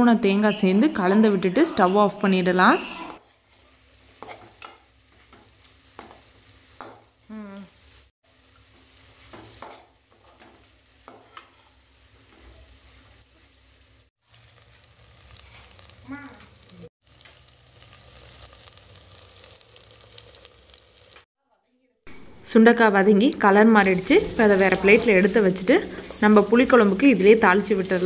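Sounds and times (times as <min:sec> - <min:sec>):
metal spatula scraping a pan: 0:02.8 - 0:06.3, 0:09.0 - 0:12.9
food sizzling in oil: 0:02.8 - 0:21.3, 0:22.1 - 0:28.0.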